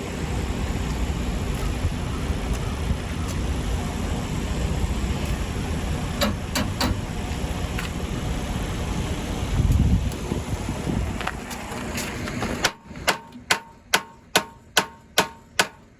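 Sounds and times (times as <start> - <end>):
vehicle engine running: 0.0 - 13.1.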